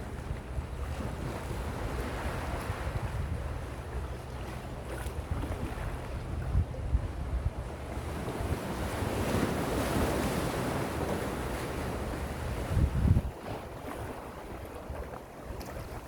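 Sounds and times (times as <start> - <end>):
wind buffeting microphone: 5.0 - 16.0
sea waves washing on shore: 7.7 - 16.0.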